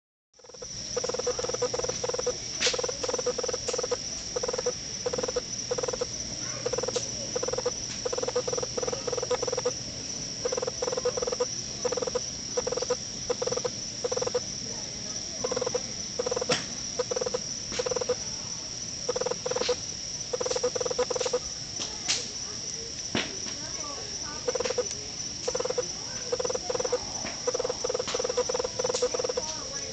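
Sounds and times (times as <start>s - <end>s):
frog calling: 0.4s - 9.8s, 10.4s - 14.5s, 15.4s - 18.2s, 19.1s - 21.4s, 24.4s - 29.6s
insect drone: 0.4s - 29.9s.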